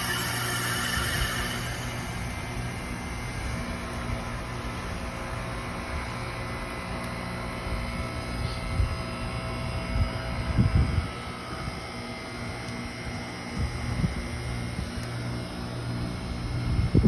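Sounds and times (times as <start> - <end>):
faint higher tone: 0.0 - 3.0
heat pump humming: 0.0 - 17.0.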